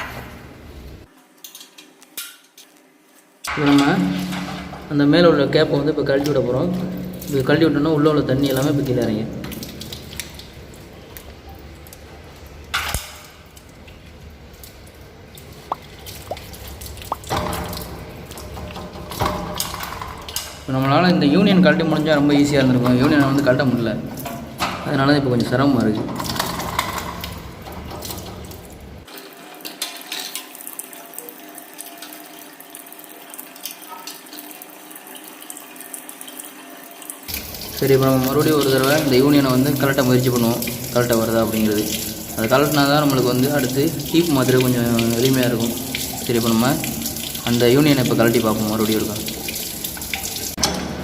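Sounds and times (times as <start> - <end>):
water dripping into water: 6.0 - 20.7, 37.3 - 50.8
water rushing from pressure tank: 14.4 - 51.0.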